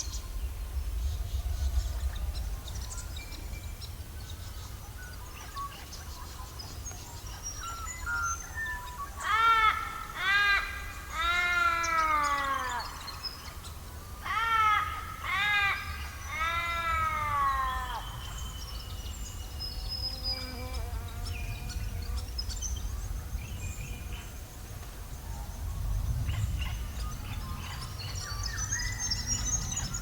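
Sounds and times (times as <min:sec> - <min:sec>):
low rumble: 0:00.0 - 0:05.0, 0:22.7 - 0:30.0
small birds chirping: 0:00.0 - 0:30.0
large bird calling: 0:07.2 - 0:19.0.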